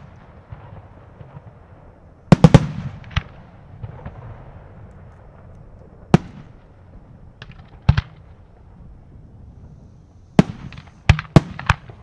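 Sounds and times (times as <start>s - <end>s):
fireworks bangs: 0.0s - 12.0s
rumble of fireworks bursts: 0.0s - 12.0s.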